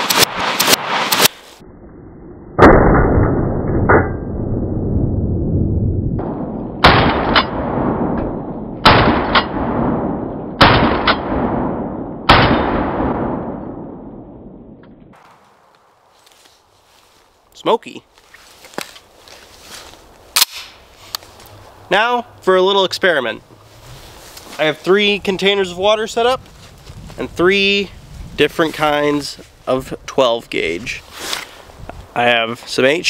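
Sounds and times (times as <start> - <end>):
sharp crack: 0.0 - 1.6, 6.2 - 14.0, 20.3 - 21.4
slowed shotgun booms: 2.6 - 4.0, 6.2 - 14.8.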